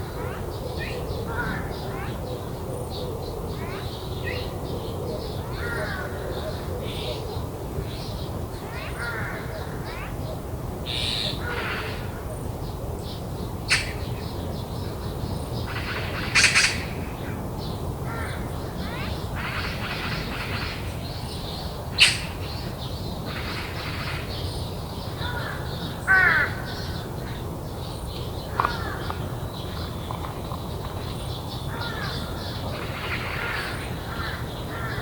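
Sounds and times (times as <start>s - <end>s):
harsh crow calls: 0.0s - 2.2s, 5.5s - 7.1s, 8.8s - 10.1s, 10.9s - 12.3s, 18.0s - 20.9s, 25.1s - 27.4s, 28.5s - 29.4s, 31.7s - 35.0s
faint bird calls: 0.0s - 12.8s, 13.6s - 15.0s, 15.6s - 17.4s, 18.1s - 27.4s, 28.4s - 35.0s.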